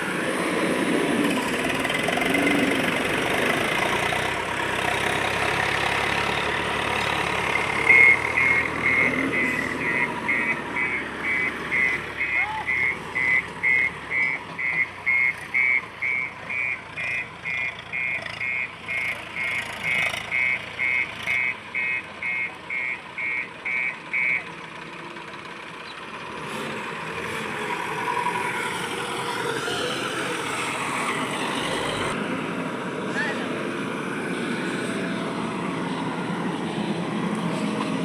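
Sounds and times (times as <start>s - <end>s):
vehicle reversing alarm beeping: 5.4s - 24.5s.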